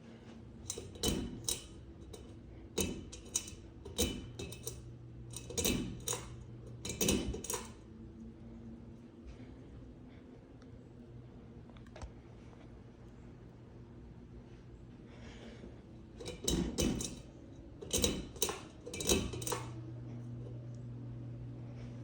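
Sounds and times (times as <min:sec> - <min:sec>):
ceiling fan humming: 0:00.0 - 0:22.0
sharp clicks and rattles: 0:00.7 - 0:07.8, 0:16.2 - 0:19.8.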